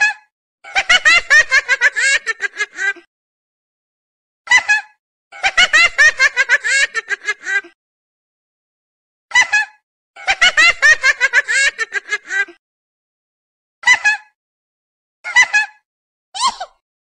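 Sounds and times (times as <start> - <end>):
high giggling laughter: 0.0 - 3.1, 4.5 - 7.8, 9.3 - 12.6, 13.8 - 14.4, 15.3 - 16.8.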